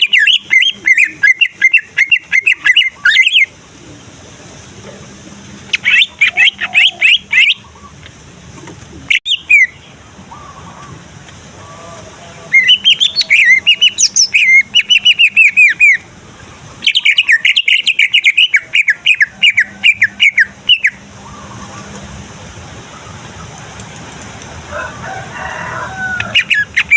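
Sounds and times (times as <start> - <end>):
bird singing rapid trills: 0.0 - 3.5, 12.5 - 16.1, 16.7 - 21.9.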